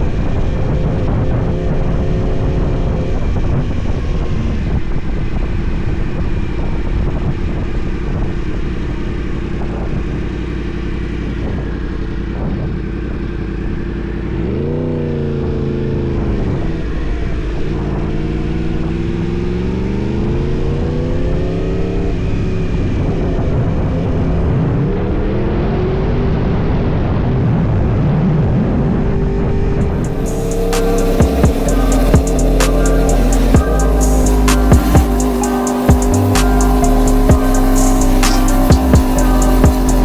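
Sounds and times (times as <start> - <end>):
wind noise: 0.0 - 10.1
motorcycle engine revving: 0.0 - 23.6, 29.0 - 40.0.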